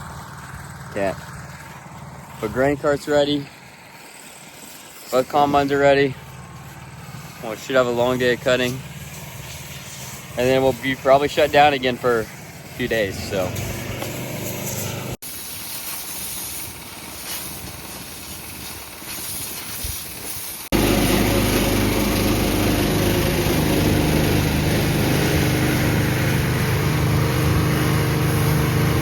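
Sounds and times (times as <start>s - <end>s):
small engine running: 0.0s - 15.2s, 16.0s - 29.0s
compressed air hissing: 2.2s - 29.0s.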